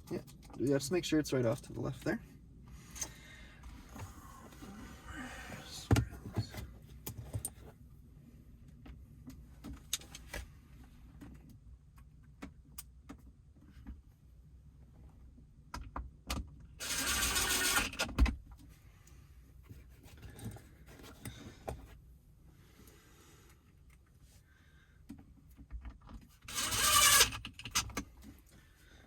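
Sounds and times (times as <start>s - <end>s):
loud rasping noise: 16.8s - 18.0s, 26.5s - 27.5s.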